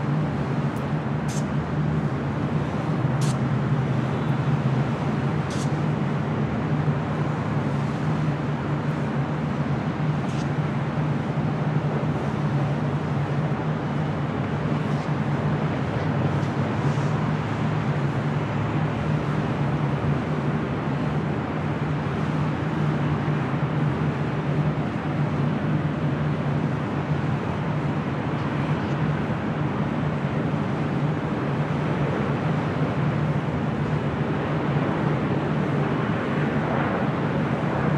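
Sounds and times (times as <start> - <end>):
jet engines droning: 0.0 - 37.9.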